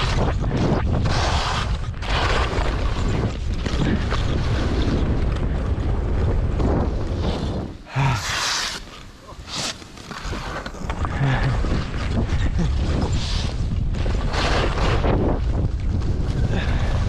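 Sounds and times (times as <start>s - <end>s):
wind buffeting microphone: 0.0s - 8.2s, 10.3s - 17.0s
skis hissing on snow: 8.0s - 10.5s.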